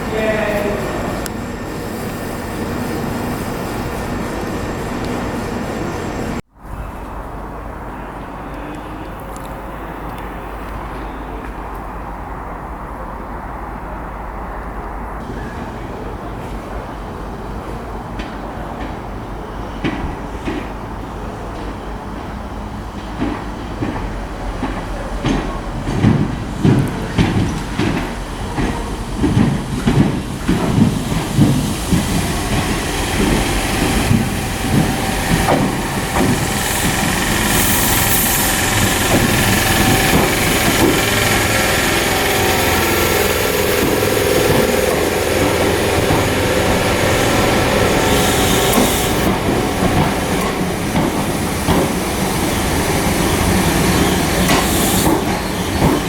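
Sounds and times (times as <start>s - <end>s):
train rumble: 0.0s - 56.0s
train wheels clattering over rail joints: 16.3s - 56.0s.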